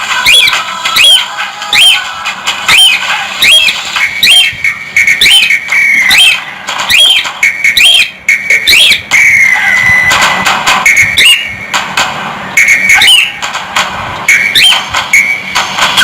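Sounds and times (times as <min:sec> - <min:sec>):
cockatiel whistling: 0:00.2 - 0:02.1, 0:02.7 - 0:11.5, 0:12.6 - 0:13.4, 0:14.3 - 0:15.4.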